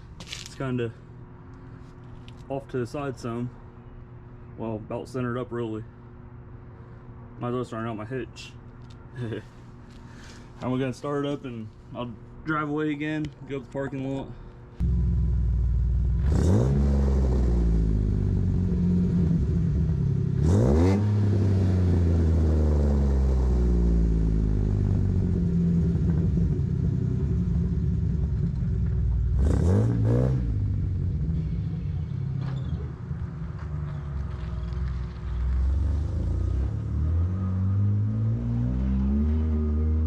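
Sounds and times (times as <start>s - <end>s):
car engine idling and revving: 14.7s - 40.0s.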